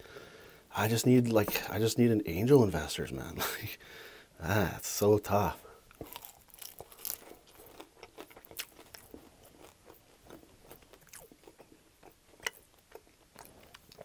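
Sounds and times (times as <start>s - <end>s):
crispy chicken wing crunching: 6.0s - 14.0s.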